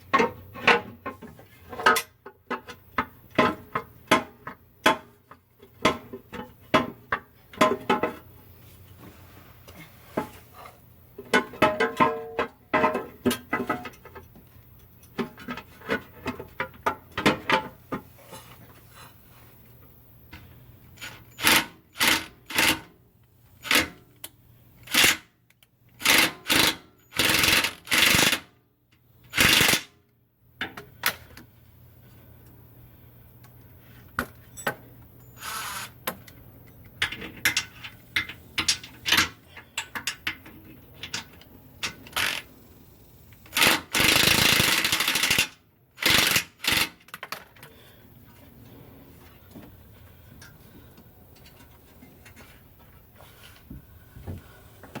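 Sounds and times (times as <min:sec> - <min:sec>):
power tool rattling: 0:21.0 - 0:22.9, 0:26.0 - 0:28.4, 0:29.3 - 0:29.9, 0:42.1 - 0:42.5, 0:43.5 - 0:47.4.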